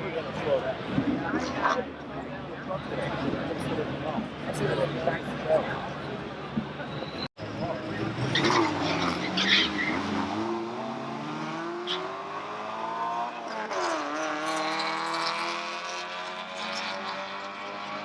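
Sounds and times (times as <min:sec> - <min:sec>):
drag racing cars accelerating: 0:07.4 - 0:18.0.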